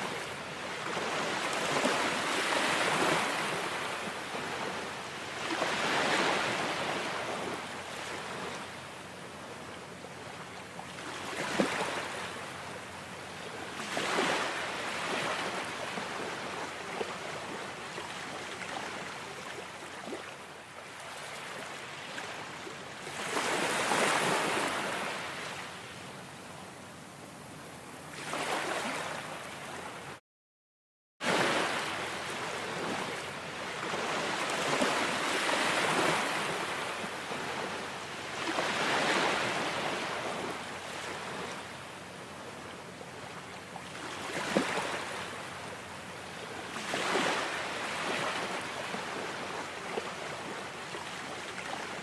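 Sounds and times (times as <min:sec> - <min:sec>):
ocean waves breaking: 0:00.0 - 0:08.7, 0:10.9 - 0:12.4, 0:13.8 - 0:20.3, 0:23.0 - 0:25.6, 0:28.1 - 0:29.8, 0:31.2 - 0:41.7, 0:43.8 - 0:45.5, 0:46.4 - 0:52.0.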